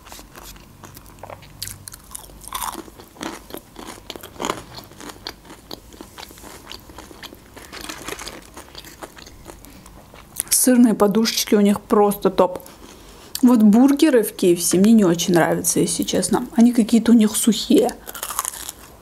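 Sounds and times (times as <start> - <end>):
crunching and chewing fried food: 0.0 - 10.6, 17.8 - 19.0.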